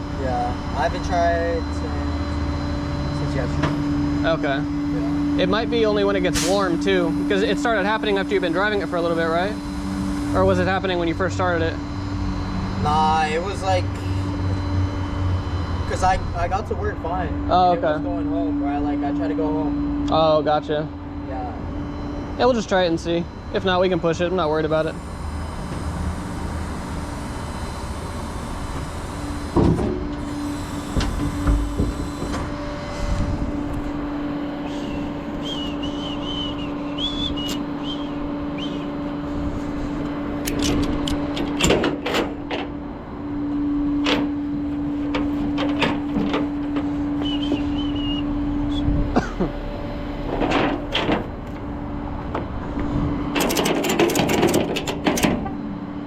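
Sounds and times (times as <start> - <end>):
hydraulic bed humming: 0.0 - 56.0
metal clanks and clicks: 40.4 - 42.7, 50.3 - 51.6, 53.3 - 55.6.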